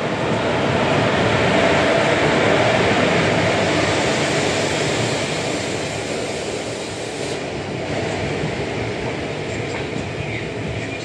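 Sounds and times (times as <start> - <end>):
electric locomotive passing: 0.0 - 11.0.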